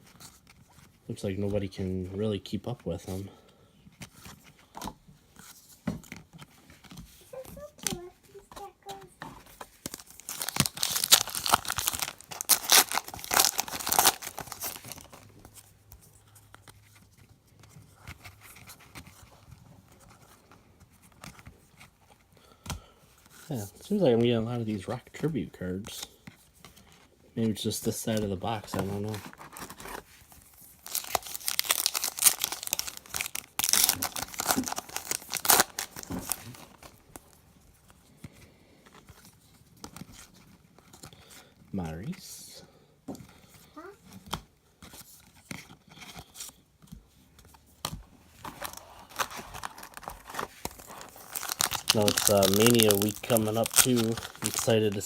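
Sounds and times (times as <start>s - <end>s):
cards rustling: 0.0s - 42.2s, 43.2s - 55.0s
card pack wrapper tearing: 9.8s - 15.2s, 30.8s - 37.3s, 48.4s - 55.0s.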